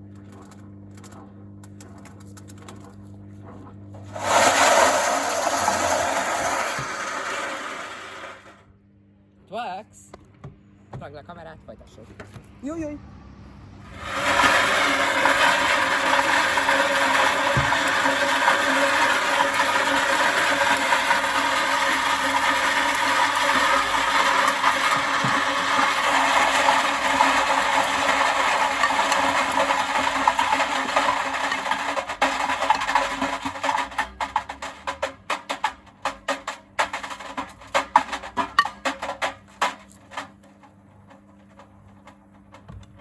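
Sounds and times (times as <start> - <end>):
bricks banging in washing machine drum: 4.0 - 8.4, 14.0 - 40.5.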